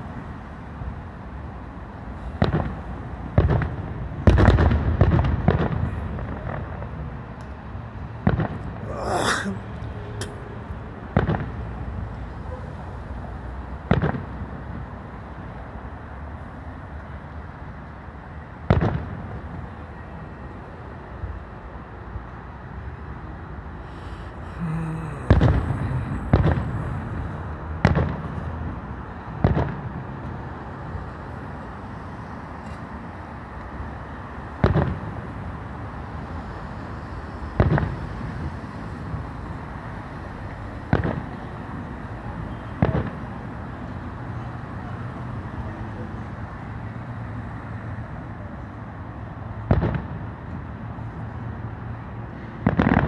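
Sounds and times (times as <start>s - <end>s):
distant firework booms: 26.3s - 27.1s.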